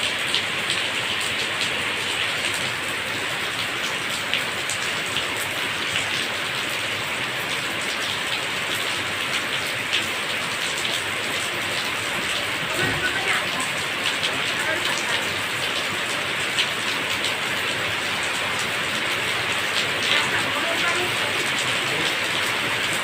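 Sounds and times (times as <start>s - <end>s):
raindrops ticking: 0.0s - 23.0s
steady rain falling: 0.0s - 23.0s.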